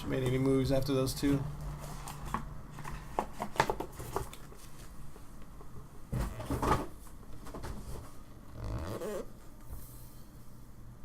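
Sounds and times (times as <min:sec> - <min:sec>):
card packaging handling noise: 0:01.4 - 0:05.4.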